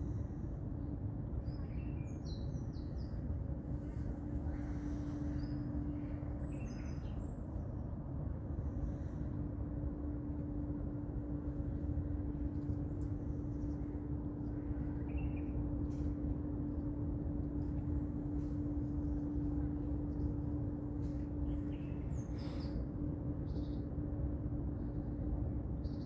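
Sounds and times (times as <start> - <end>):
constant hum: 0.0 - 26.0
steady low rumble: 0.0 - 26.0
small birds chirping: 3.8 - 7.5.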